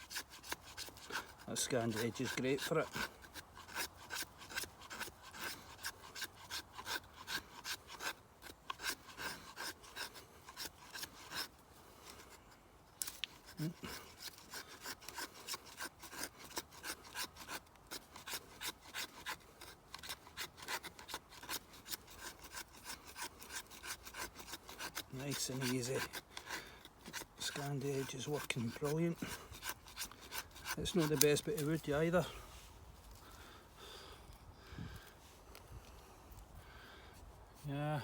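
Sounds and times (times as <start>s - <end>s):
knife shaving wood: 0.0s - 33.6s.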